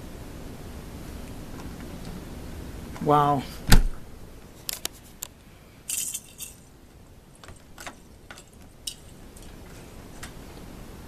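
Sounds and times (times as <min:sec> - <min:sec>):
light clinks and clicks: 0:05.9 - 0:06.7, 0:07.4 - 0:10.4.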